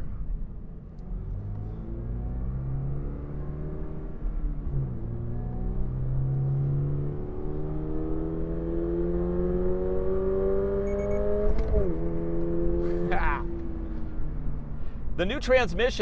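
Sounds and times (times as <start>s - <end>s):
car engine revving: 0.9s - 14.8s
short high beep: 10.9s - 11.3s.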